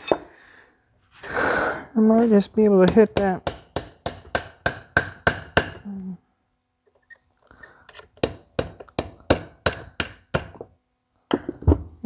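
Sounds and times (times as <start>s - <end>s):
hammer striking metal: 2.9s - 5.8s, 8.2s - 10.6s.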